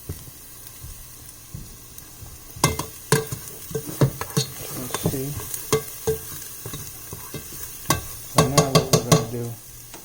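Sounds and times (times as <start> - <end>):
garlic sizzling in a pan: 0.0 - 10.0
utensil clinking against pan: 2.6 - 9.4.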